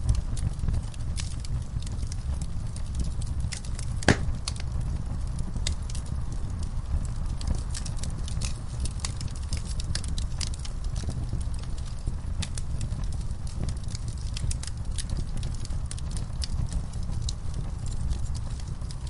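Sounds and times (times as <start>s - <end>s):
fire crackling: 0.0s - 19.0s
fire flames rumbling: 0.0s - 19.0s
sharp loud pop: 4.1s - 4.4s.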